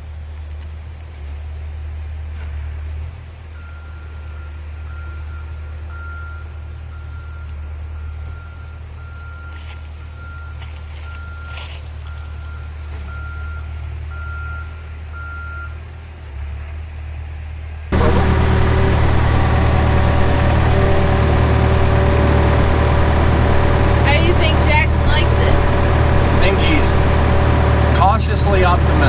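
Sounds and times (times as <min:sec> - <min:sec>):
diesel engine running: 0:00.0 - 0:29.0
crackling: 0:09.1 - 0:14.8.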